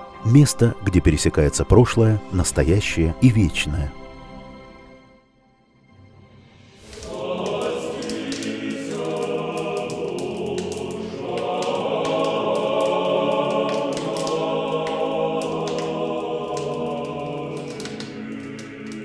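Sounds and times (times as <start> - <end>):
choir singing: 6.8 - 19.0.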